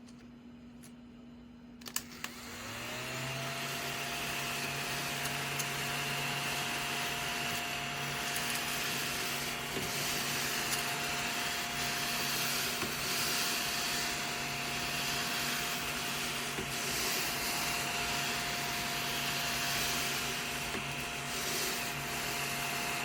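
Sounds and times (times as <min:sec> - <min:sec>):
small vacuum cleaner running: 0:01.8 - 0:23.0.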